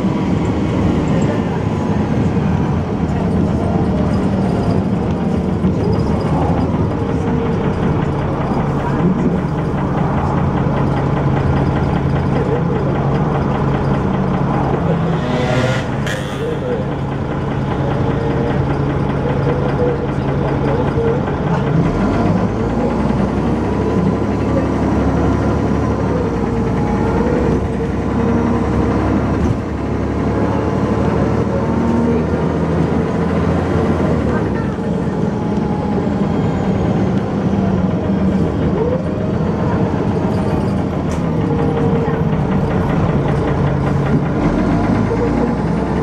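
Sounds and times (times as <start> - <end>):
bus engine running: 0.0 - 46.0
regular engine knock: 4.1 - 15.3, 16.0 - 29.9, 39.4 - 46.0.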